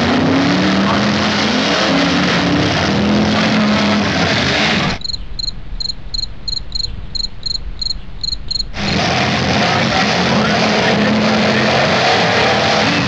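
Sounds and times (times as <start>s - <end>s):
loud car engines running: 0.0s - 5.0s, 8.7s - 13.0s
low rumble: 4.2s - 10.2s
crickets chirping: 5.0s - 9.0s.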